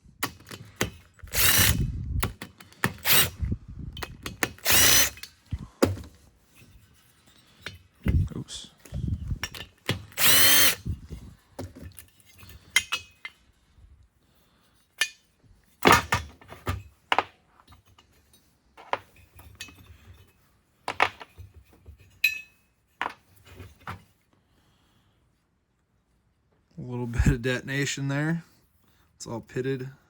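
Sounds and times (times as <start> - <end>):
metal engine parts clinking: 22.0 - 22.6.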